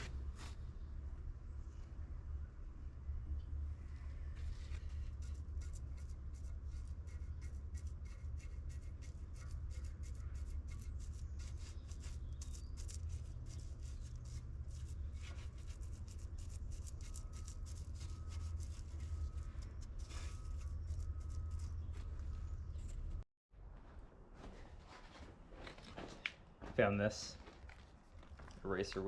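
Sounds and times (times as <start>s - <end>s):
steady low hum: 0.0s - 24.3s
hand scraping a surface: 4.2s - 22.2s.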